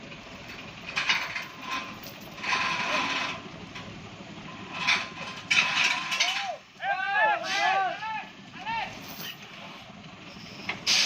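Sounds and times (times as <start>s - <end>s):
heavy truck rumble: 0.0s - 11.0s
truck air brake hissing: 9.5s - 11.0s.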